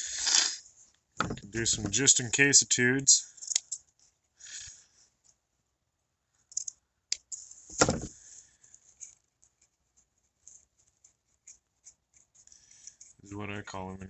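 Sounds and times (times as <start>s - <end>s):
small clicks and rustles: 3.3s - 5.4s, 6.4s - 13.3s.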